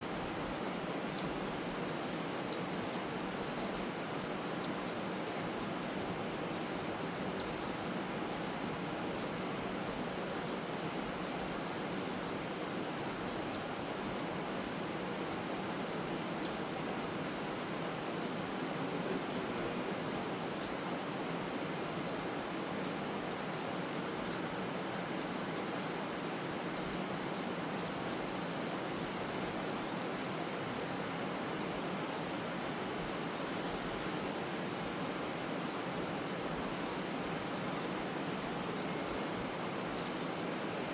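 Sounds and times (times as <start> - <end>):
steady rushing noise: 0.0 - 40.9
sparrow chirping: 2.2 - 8.0, 10.8 - 18.3, 25.2 - 32.2, 38.2 - 40.9.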